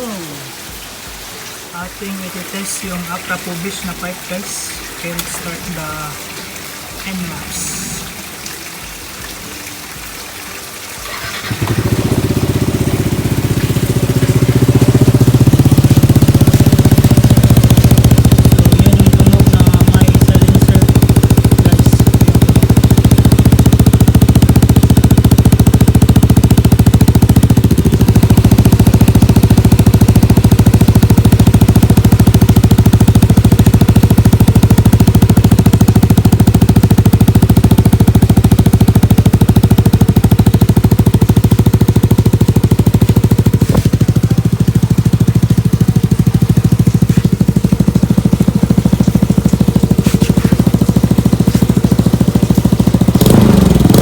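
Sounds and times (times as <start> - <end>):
scooter engine idling: 11.0 - 54.0.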